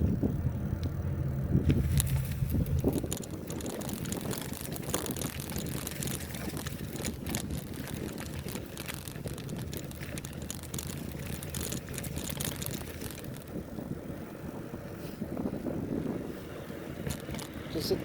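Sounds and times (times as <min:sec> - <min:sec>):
bike rattles and clicks: 0:00.0 - 0:18.0
rushing noise of riding: 0:00.0 - 0:18.0.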